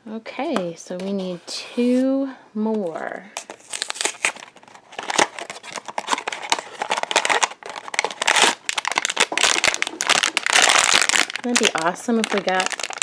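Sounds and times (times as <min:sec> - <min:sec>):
packaging crinkling and tearing: 0:03.4 - 0:13.0.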